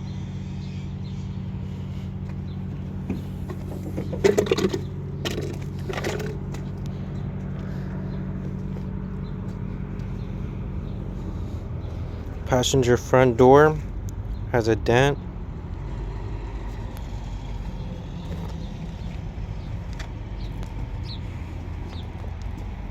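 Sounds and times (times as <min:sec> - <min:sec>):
handling noises: 0:02.3 - 0:07.7.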